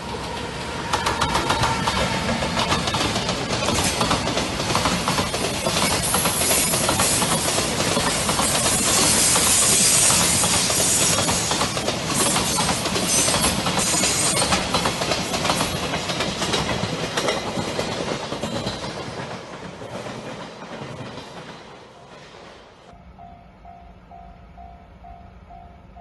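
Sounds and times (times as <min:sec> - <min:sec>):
freight train rushing noise: 0:00.0 - 0:26.0
wheels clacking over rail joints: 0:00.3 - 0:22.5.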